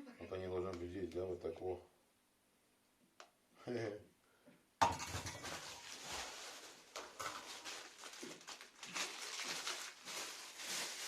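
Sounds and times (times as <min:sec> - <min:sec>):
packaging rustling and crinkling: 0:05.2 - 0:11.0.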